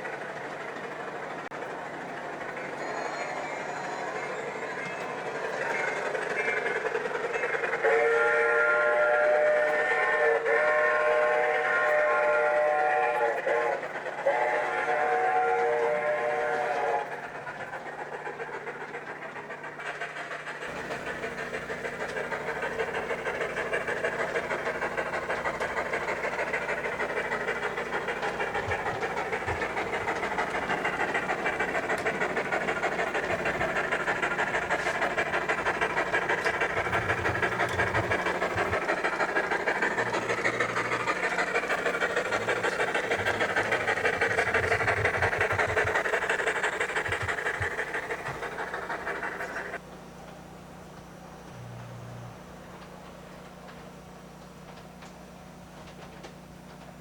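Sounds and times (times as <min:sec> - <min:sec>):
model train wheels clattering: 0:00.0 - 0:51.1, 0:52.7 - 0:57.0
model train whistle: 0:07.8 - 0:17.1.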